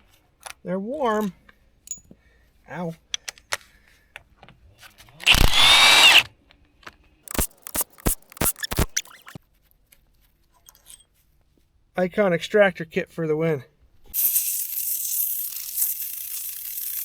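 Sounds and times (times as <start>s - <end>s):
power drill running: 5.2s - 6.3s.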